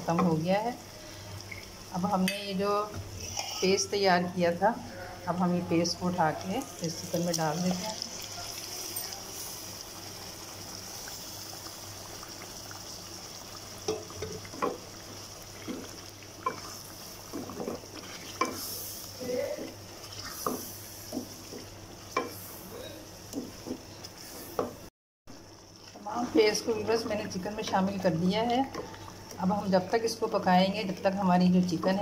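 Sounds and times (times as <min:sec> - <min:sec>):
food sizzling in oil: 0:00.0 - 0:04.6, 0:05.8 - 0:32.0
spoon scraping and knocking pan: 0:15.6 - 0:18.8, 0:19.6 - 0:22.4.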